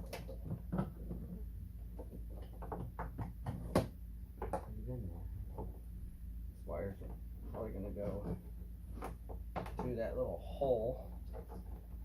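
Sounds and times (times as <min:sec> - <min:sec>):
plastic parts and wires rustling: 0:00.0 - 0:05.9, 0:06.9 - 0:12.0
steady low hum: 0:00.0 - 0:12.0.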